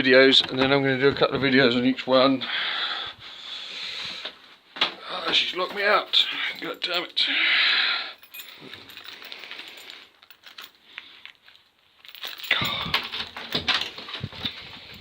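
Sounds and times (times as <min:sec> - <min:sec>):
metallic clinks and rattling at door: 0:05.4 - 0:07.2, 0:08.2 - 0:10.8, 0:12.0 - 0:15.0
clatter and knocks: 0:12.1 - 0:14.9.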